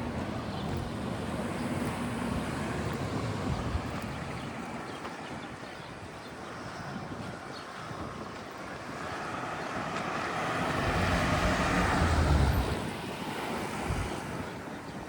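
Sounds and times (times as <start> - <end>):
vehicle driving past: 10.0 - 14.1.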